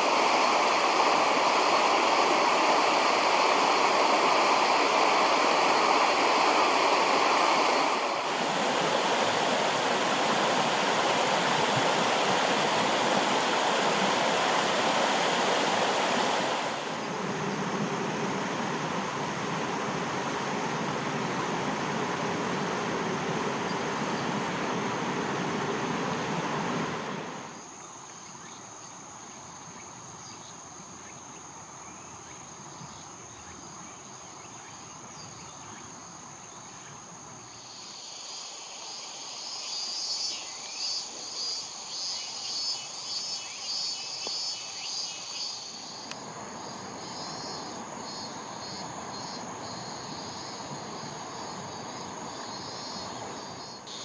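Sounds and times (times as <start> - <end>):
insects trilling: 0.0 - 25.6, 27.1 - 54.0
rushing noise: 0.0 - 27.5
pulsed insect chirping: 37.4 - 54.0.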